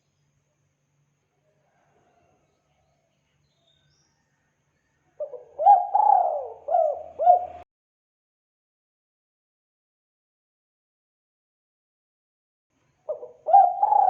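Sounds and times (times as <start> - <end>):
dove cooing: 5.2 - 7.6, 13.1 - 14.0.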